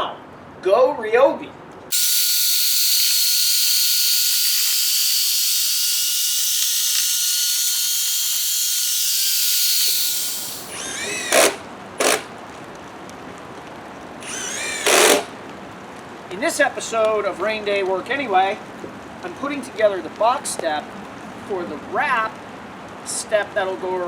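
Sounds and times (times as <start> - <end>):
cordless driver whining: 1.9 - 12.3, 14.2 - 15.4
driver driving a screw: 1.9 - 12.3, 14.2 - 15.3.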